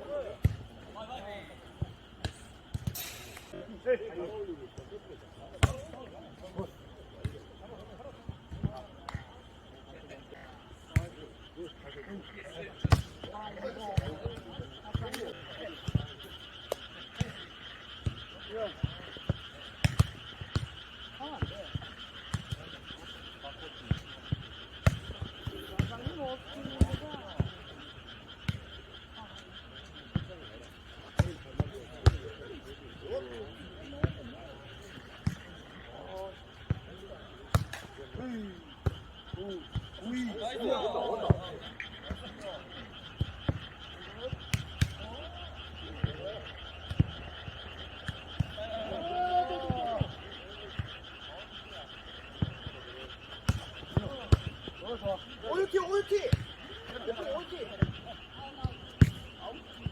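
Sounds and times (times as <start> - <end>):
frogs croaking: 0.0 - 59.9
night insects trilling: 0.0 - 59.9
ball kicked and bouncing: 53.5 - 54.5, 59.0 - 59.3.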